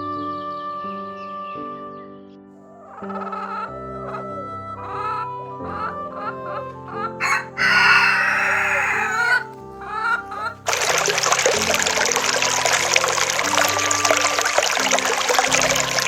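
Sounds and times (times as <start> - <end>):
chicken clucks: 2.6 - 10.7
background music: 2.6 - 16.0
rooster crowing: 7.2 - 9.5.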